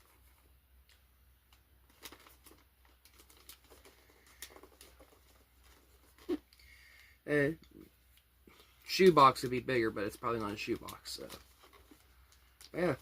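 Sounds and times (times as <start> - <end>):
taps and rustles of gift box: 1.9 - 6.4.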